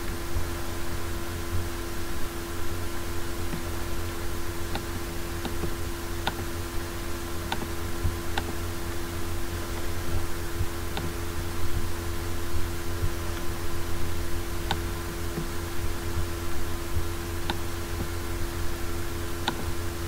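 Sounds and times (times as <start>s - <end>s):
electrical hum and hiss: 0.0s - 20.0s
computer mouse clicks: 4.7s - 6.5s, 7.5s - 7.7s, 8.3s - 8.6s, 10.9s - 11.2s, 17.4s - 18.1s, 19.4s - 19.7s.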